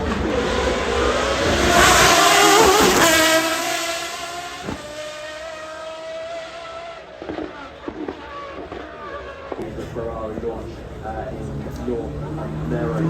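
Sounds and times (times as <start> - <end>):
car engine accelerating past: 0.0 - 9.6.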